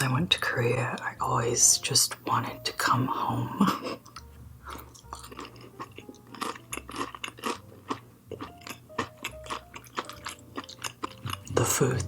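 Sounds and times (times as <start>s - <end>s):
person chewing food: 3.8s - 12.0s.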